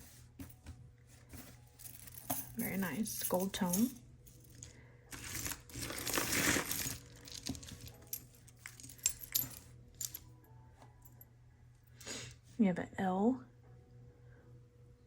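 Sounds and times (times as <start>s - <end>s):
rustling and shuffling: 0.0s - 10.2s
metal jewelry clinking: 1.3s - 10.3s.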